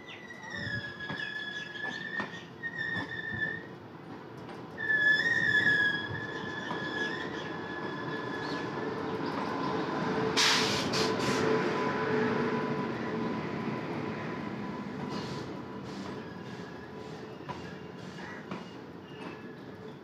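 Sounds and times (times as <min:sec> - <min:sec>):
high squeal: 0:00.0 - 0:03.7, 0:04.8 - 0:08.8
train wheels rumbling on rail: 0:00.1 - 0:20.0
sharp hiss: 0:10.4 - 0:11.5.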